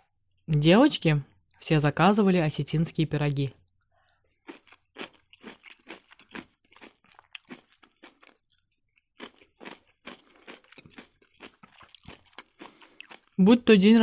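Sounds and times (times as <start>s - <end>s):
close chewing: 4.4s - 13.4s.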